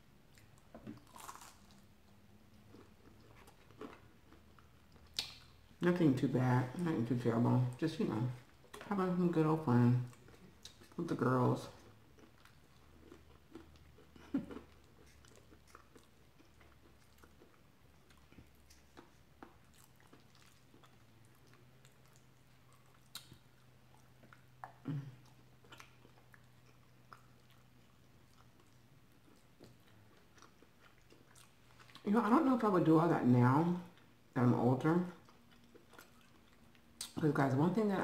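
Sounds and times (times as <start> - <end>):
chewing soft food: 0.2 - 5.8, 10.0 - 32.1, 35.0 - 37.2
wet mouth clicks: 5.0 - 5.5.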